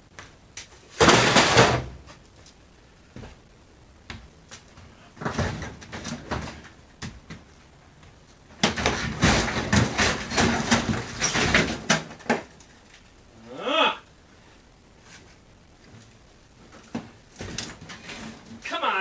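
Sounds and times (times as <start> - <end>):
scraping of refrigerator panels: 5.2 - 7.4, 8.6 - 12.5, 16.8 - 18.6
knocks and clatter: 5.2 - 7.5, 8.6 - 12.5.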